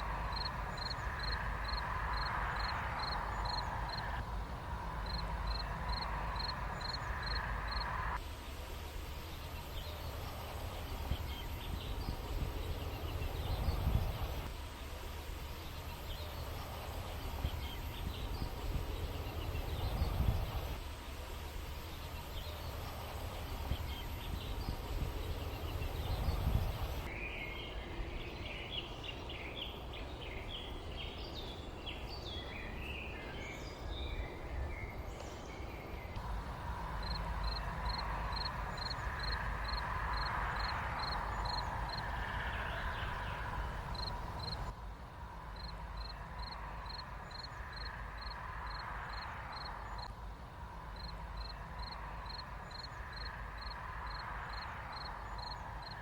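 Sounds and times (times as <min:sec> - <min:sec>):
birds chirping: 0:00.0 - 0:44.7
low background rumble: 0:00.0 - 0:55.9.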